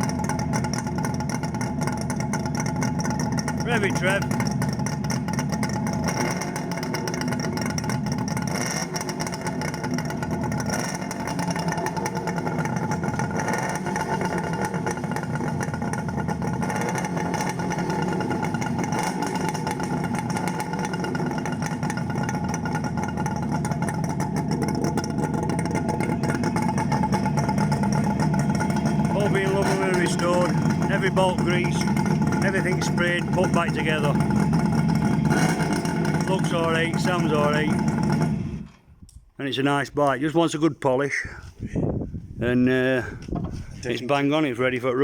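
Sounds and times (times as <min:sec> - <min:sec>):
two-stroke motorcycle engine running: 0:00.0 - 0:38.8.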